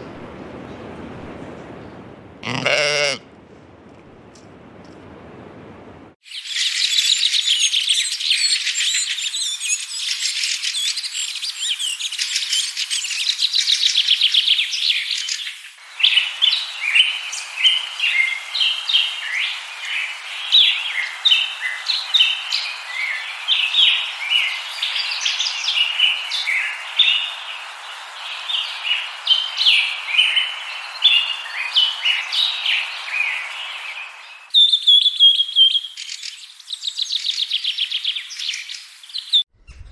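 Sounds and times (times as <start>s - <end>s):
small birds chirping: 6.3s - 39.5s
steady hiss: 8.2s - 34.5s.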